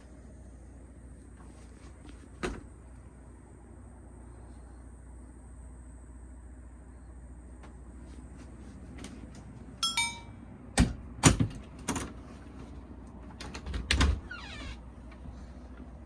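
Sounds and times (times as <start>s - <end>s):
brief ringing tone: 9.8s - 10.4s.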